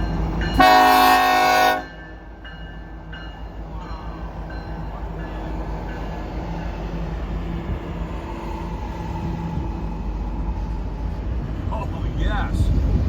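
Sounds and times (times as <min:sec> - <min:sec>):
locomotive engine rumble: 0:00.0 - 0:13.0
train wheels on rails: 0:00.0 - 0:13.0.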